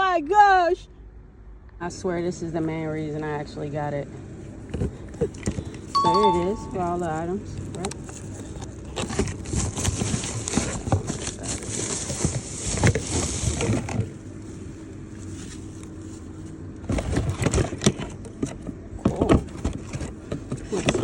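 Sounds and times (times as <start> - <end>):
packaging rustling and crinkling: 8.1 - 14.0.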